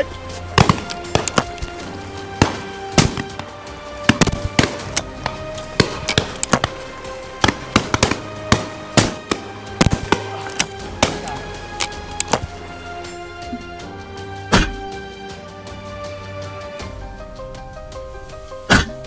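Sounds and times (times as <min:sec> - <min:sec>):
background music with held notes: 0:00.0 - 0:19.0
shotguns firing: 0:00.4 - 0:12.6.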